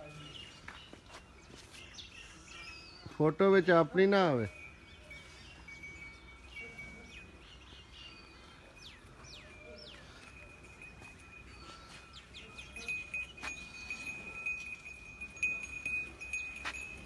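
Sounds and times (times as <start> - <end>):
small birds chirping: 0.0 - 3.4, 4.5 - 17.0.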